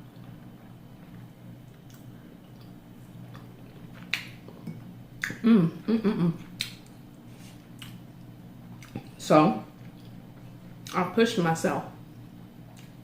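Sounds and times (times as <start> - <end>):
short hummed vocal sound: 4.5 - 6.7.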